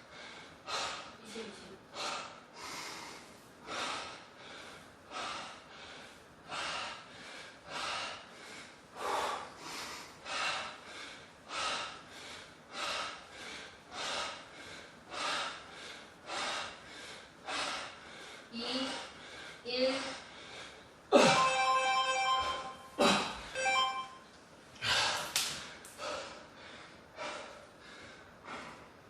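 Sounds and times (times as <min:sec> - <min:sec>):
man breathing hard: 0:00.0 - 0:01.2, 0:01.9 - 0:21.4, 0:24.8 - 0:29.0.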